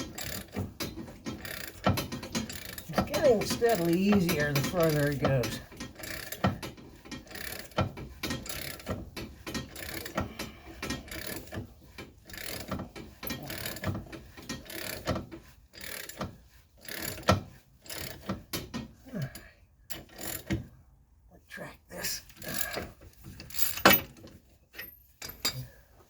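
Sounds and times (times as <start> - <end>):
ratchet wrench clicking: 6.0 - 6.5, 7.2 - 8.9, 12.3 - 12.7.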